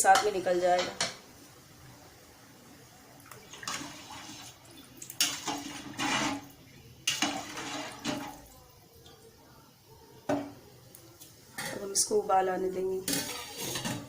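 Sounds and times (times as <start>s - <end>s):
water sloshing in a pot: 2.9s - 14.0s.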